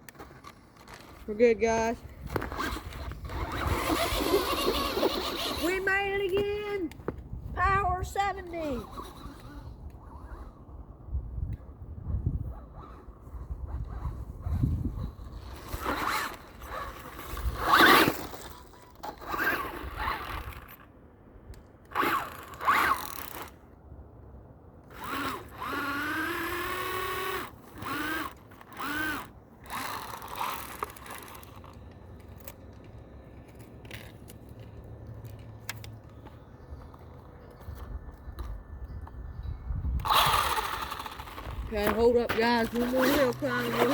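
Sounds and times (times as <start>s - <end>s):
tyres scrabbling on dirt: 0.0s - 7.2s, 40.0s - 43.9s
rc car motor whirring: 2.3s - 5.9s, 8.4s - 10.7s, 12.7s - 20.9s, 21.9s - 23.6s, 24.9s - 32.6s, 40.0s - 43.9s.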